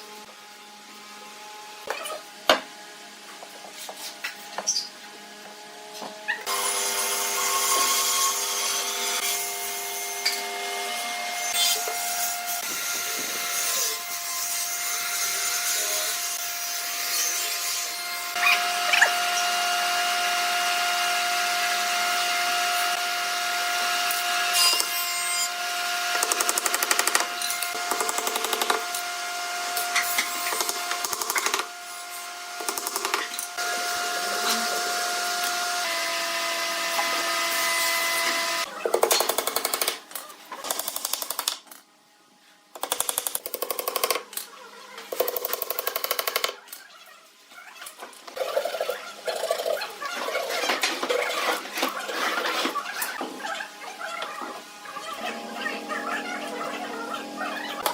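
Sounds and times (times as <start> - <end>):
power tool motor whine: 5.3 - 14.0.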